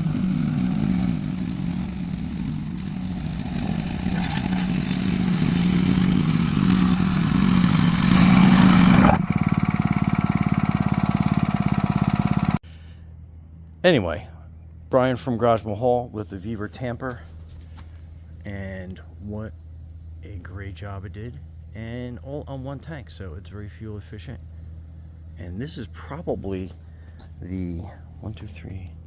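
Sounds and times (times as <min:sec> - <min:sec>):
plate compactor engine running: 0:00.0 - 0:13.0.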